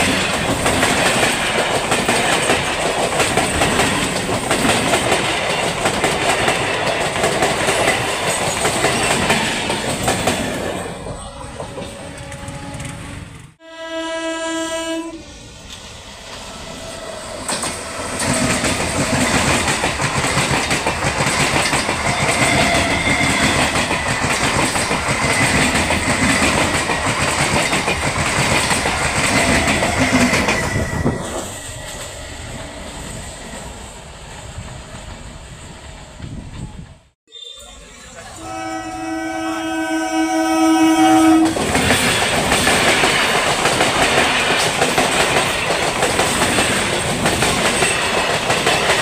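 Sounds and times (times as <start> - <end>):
train wheels clattering over rails: 0.0 - 13.0, 17.3 - 32.8, 41.4 - 49.0
train horn: 11.6 - 15.4, 22.1 - 23.8, 29.3 - 32.4, 37.3 - 41.6.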